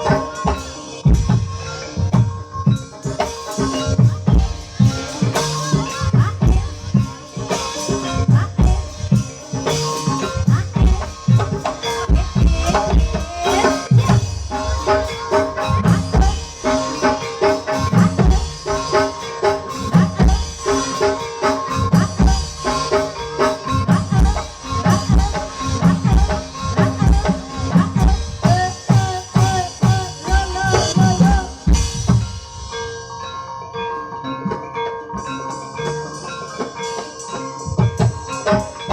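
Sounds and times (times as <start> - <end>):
hand drums beating fast rhythm: 0.0 - 32.7
ringing tuned metal percussion: 0.0 - 38.9
wavering melody line: 0.0 - 38.9.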